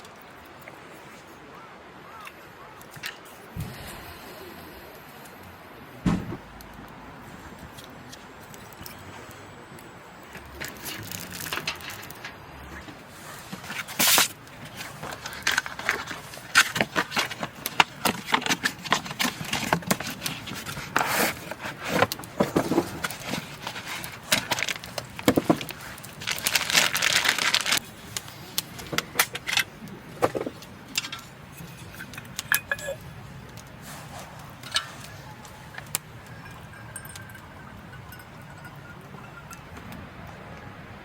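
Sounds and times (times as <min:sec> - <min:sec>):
clicks and knocks: 0:06.0 - 0:06.9
scraping rustles: 0:10.6 - 0:37.7.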